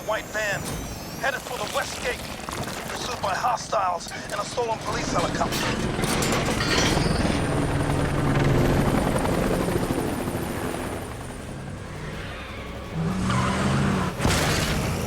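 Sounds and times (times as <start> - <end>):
helicopter rotor chop: 0.0 - 15.0
vehicle engine at speed: 11.5 - 15.0.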